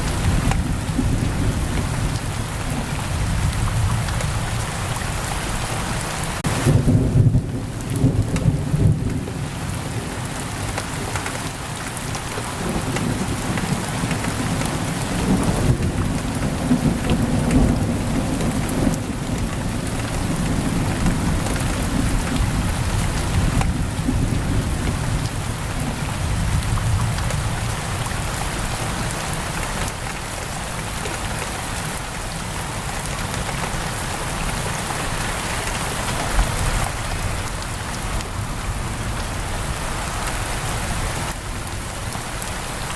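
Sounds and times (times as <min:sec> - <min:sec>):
heavy rain on a window: 0:00.0 - 0:42.9
rolling thunder rumble: 0:06.4 - 0:10.2, 0:12.4 - 0:28.1.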